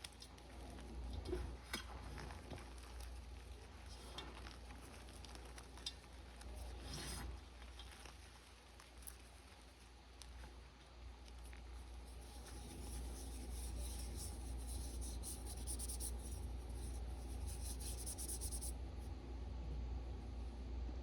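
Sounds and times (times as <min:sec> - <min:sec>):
chalk crunching and crumbling: 0:01.9 - 0:10.6, 0:11.2 - 0:18.7.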